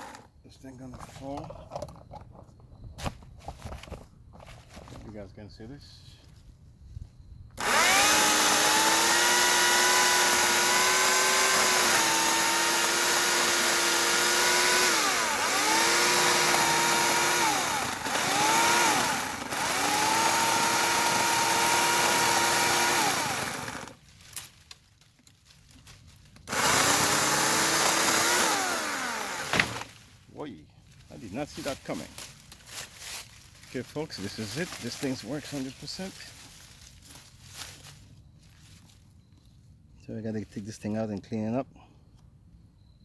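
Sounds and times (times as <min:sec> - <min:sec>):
electric chainsaw running: 0:00.0 - 0:00.3, 0:07.6 - 0:24.0, 0:26.5 - 0:29.9.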